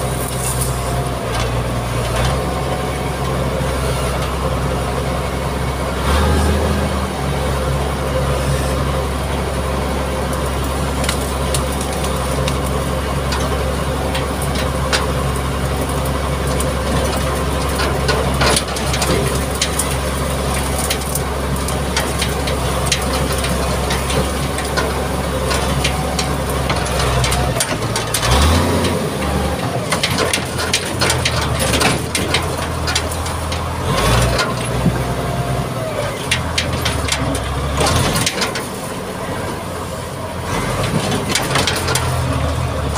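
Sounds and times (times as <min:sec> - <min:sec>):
diesel engine under load: 0:00.0 - 0:42.9
crackling and crunching: 0:10.2 - 0:39.7.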